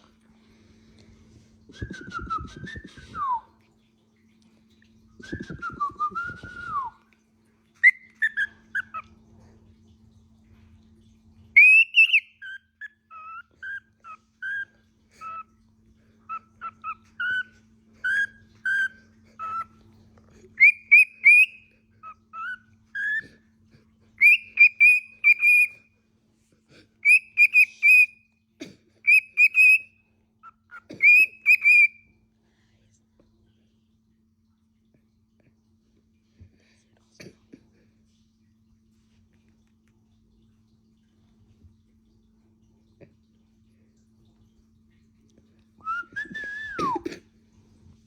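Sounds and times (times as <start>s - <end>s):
parrot whistling: 7.8s - 9.0s, 11.6s - 13.8s, 20.6s - 21.6s, 24.2s - 25.8s, 27.0s - 28.2s, 29.1s - 29.9s, 31.0s - 32.0s.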